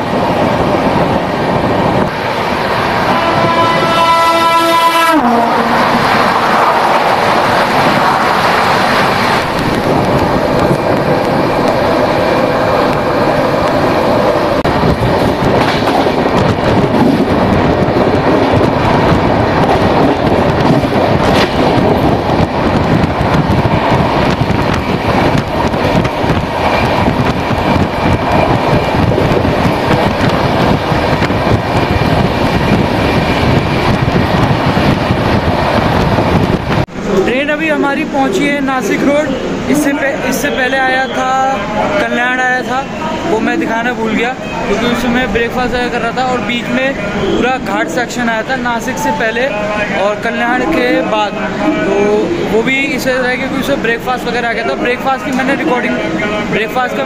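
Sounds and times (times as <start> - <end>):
train clatter: 0.0 - 37.4
train wheels rumbling on rails: 0.0 - 57.0.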